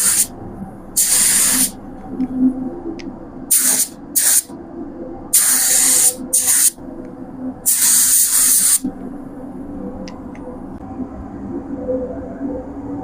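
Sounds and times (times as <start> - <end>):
spray gun hissing air: 0.0 - 0.3, 1.0 - 1.8, 3.5 - 4.5, 5.3 - 6.8, 7.6 - 8.9
steady low hum: 0.0 - 13.0.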